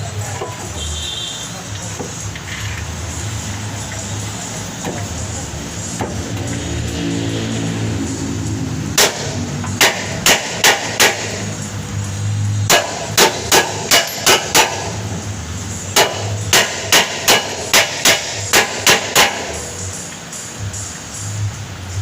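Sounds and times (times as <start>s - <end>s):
hammer blows: 5.9s - 11.5s.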